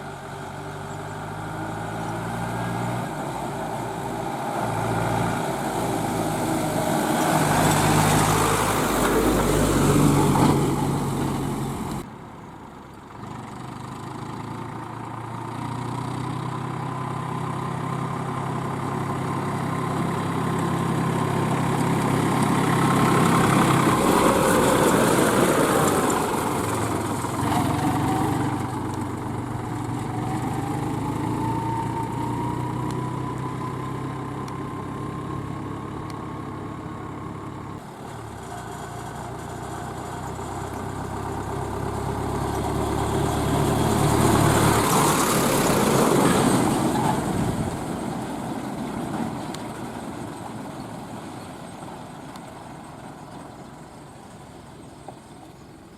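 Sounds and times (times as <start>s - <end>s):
diesel vehicles passing: 0.0s - 55.9s.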